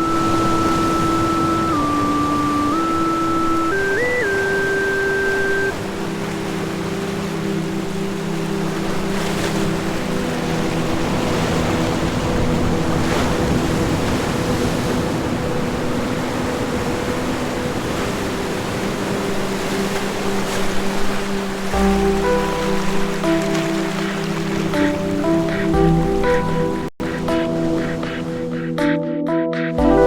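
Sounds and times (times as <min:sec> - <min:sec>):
ocean surf washing: 0:00.0 - 0:29.0
held ambient synth chord: 0:00.0 - 0:30.0.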